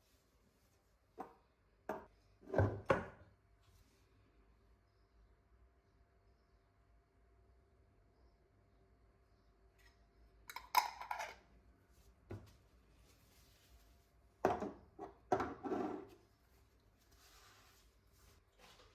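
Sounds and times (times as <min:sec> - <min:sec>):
kitchenware clattering: 0:10.5 - 0:11.4.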